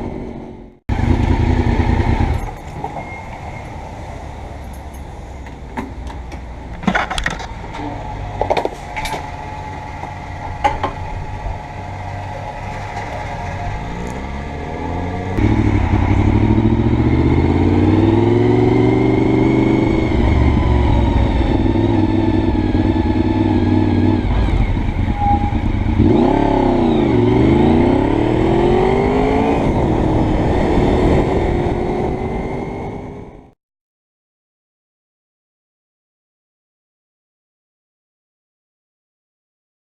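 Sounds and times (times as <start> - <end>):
motorcycle engine revving: 0.4 - 2.7, 9.8 - 33.5.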